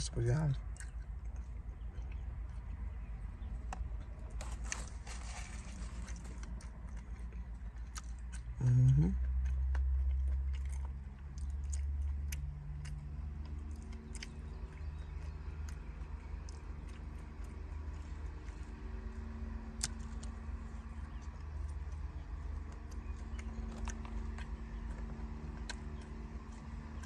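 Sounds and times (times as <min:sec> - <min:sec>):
chewing and mouth clicks: 0:00.5 - 0:27.0
person humming: 0:08.6 - 0:09.2.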